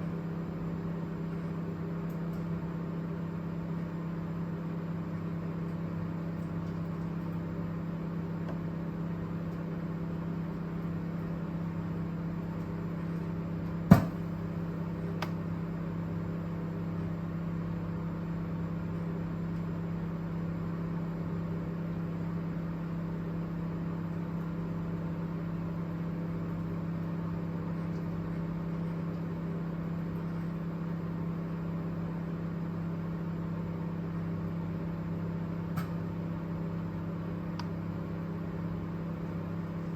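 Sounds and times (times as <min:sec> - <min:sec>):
microwave oven humming: 0:00.0 - 0:39.9
sharp loud pop: 0:13.9 - 0:14.3.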